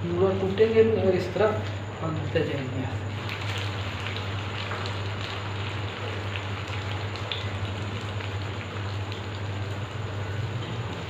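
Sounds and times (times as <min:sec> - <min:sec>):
steady low hum: 0:00.0 - 0:11.0
food sizzling in hot oil: 0:03.1 - 0:11.0.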